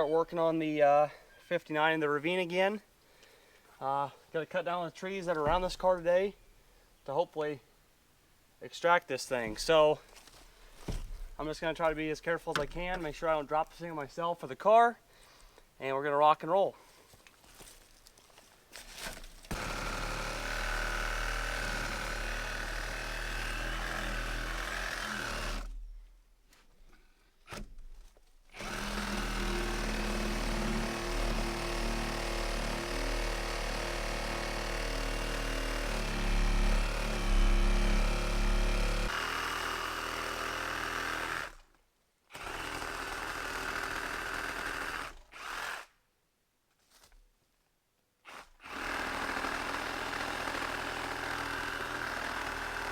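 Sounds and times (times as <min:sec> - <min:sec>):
chainsaw cutting trees: 0:19.0 - 0:25.7, 0:28.5 - 0:41.7, 0:42.3 - 0:45.9, 0:48.3 - 0:52.9.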